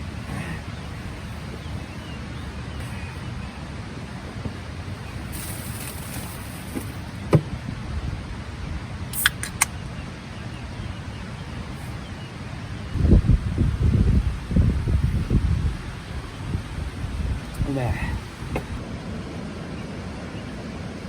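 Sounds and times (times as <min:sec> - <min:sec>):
vehicle engine rumbling: 0:00.0 - 0:21.0
sharp clicks: 0:09.2 - 0:09.8.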